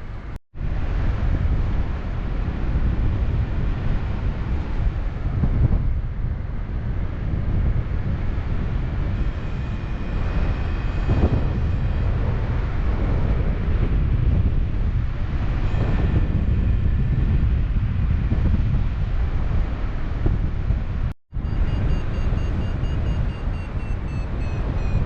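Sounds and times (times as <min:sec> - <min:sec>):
wind buffeting microphone: 0:00.0 - 0:25.0
faint high steady tone: 0:21.4 - 0:25.0.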